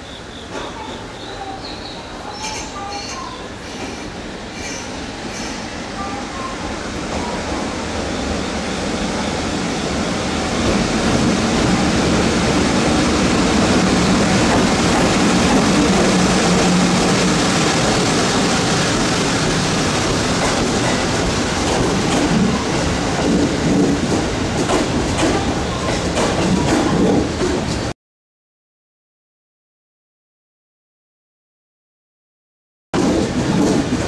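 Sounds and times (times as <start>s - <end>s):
train rumbling on rails: 0.0s - 27.9s, 33.0s - 34.0s.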